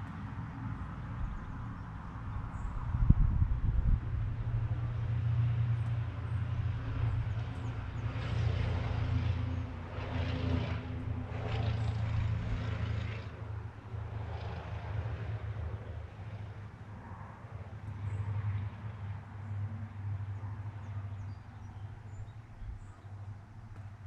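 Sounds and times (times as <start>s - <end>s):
distant engine drone: 0.0s - 24.0s.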